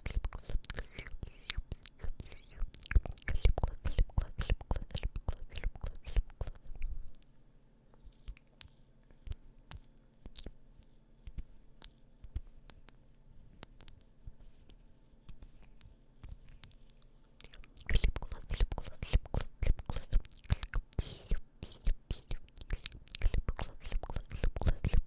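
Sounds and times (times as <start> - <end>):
wet lip and tongue clicks: 0.0 - 7.3, 16.5 - 25.0.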